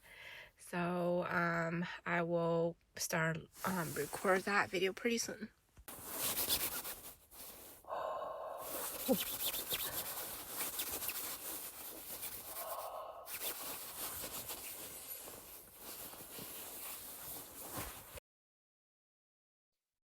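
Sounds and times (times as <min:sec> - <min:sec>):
microphone rubbing on clothing: 0:05.9 - 0:07.9, 0:08.6 - 0:18.2.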